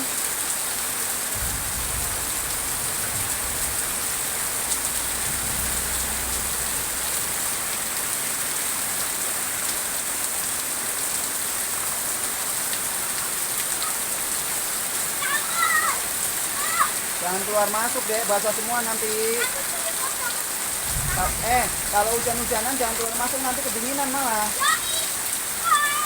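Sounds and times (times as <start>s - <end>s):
heavy rain hissing: 0.0s - 26.0s
faint low rumble: 1.4s - 7.9s.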